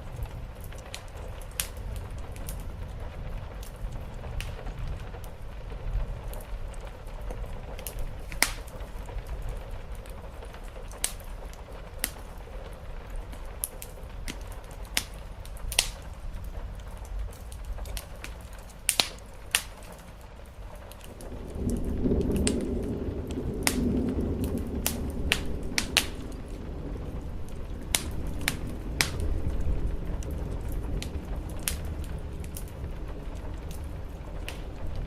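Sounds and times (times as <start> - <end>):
rain pattering: 0.0 - 35.0
wood fire crackling and popping: 0.0 - 35.0
low rumble: 21.1 - 35.0.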